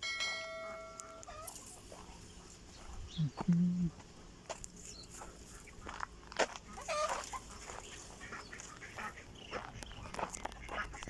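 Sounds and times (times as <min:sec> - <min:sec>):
chickens clucking: 0:01.0 - 0:04.2, 0:04.8 - 0:11.0
drawn-out chicken call: 0:06.6 - 0:11.0.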